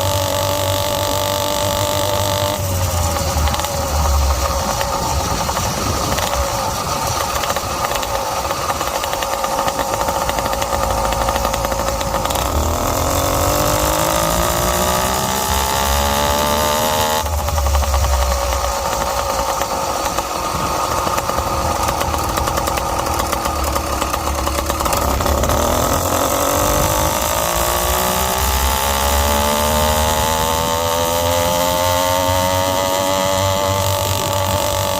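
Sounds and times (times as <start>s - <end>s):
motorized bicycle engine: 0.0s - 34.9s
wind rumbling on microphone: 2.6s - 8.8s.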